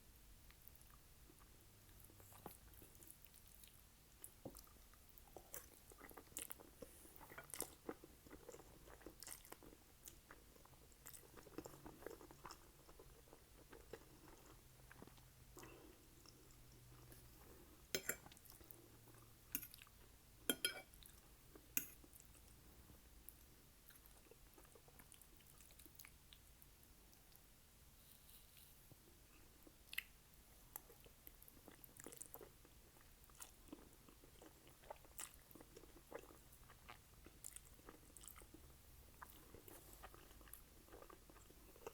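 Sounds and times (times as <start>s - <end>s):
close chewing with mouth clicks: 0.5s - 20.1s, 29.4s - 41.9s.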